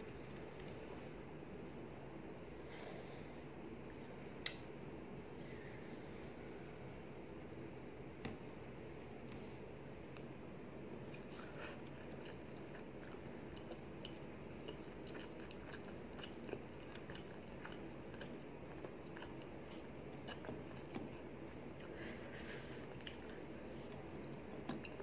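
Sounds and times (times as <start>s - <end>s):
person chewing: 11.1s - 22.0s, 22.7s - 25.0s.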